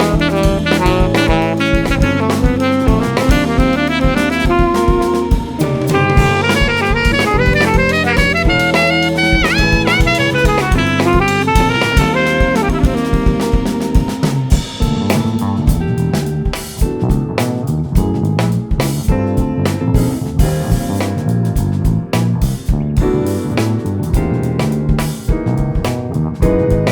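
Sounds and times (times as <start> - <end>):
saxophone melody: 0.0 - 17.1
bass: 0.0 - 26.9
drum kit: 0.0 - 26.9.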